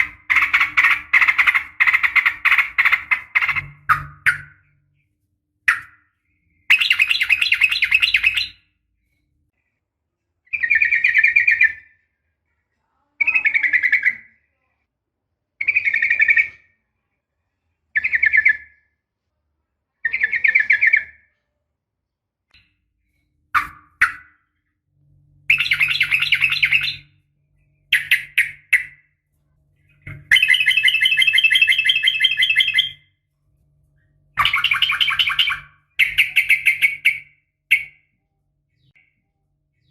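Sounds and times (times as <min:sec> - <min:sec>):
bird trilling chatter: 0:00.0 - 0:04.7, 0:25.5 - 0:27.1, 0:30.3 - 0:33.0, 0:34.4 - 0:38.0.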